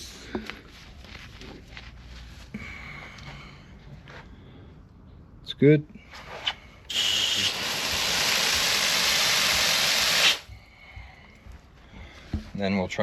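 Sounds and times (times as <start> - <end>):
water gushing from hose valve: 6.9 - 10.5.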